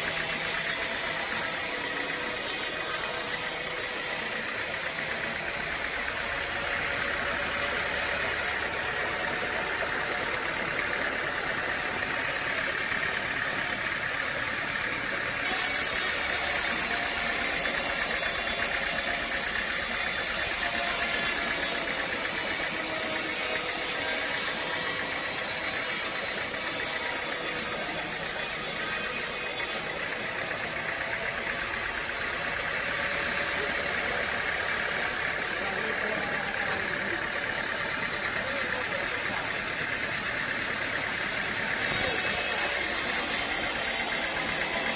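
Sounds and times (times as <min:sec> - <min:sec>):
sawmill machinery humming: 0:00.0 - 0:44.9.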